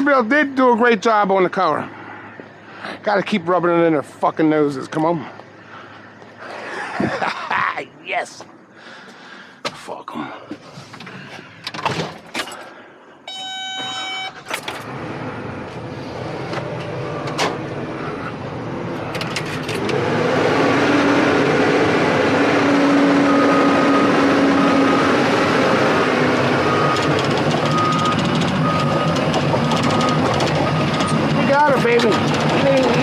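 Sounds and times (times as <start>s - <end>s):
short electronic tone: 13.3s - 14.5s
short repeated beeps: 13.3s - 14.5s
truck engine running: 14.6s - 33.0s.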